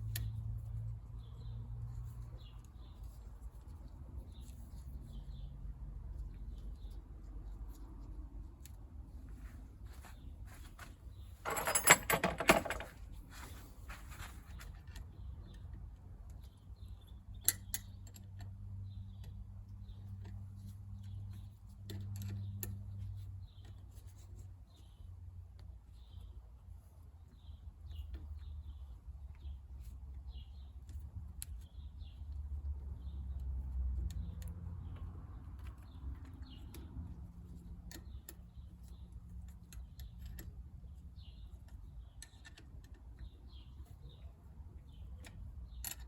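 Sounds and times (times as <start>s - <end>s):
metal tools clinking and rattling: 11.4s - 13.5s.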